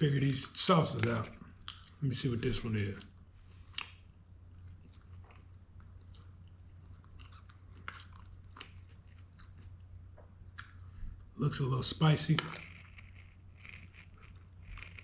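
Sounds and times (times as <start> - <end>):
low steady hum: 0.0 - 15.0
person chewing food: 0.9 - 2.0, 2.9 - 11.4, 12.4 - 15.0
crunchy clicks: 12.2 - 15.0.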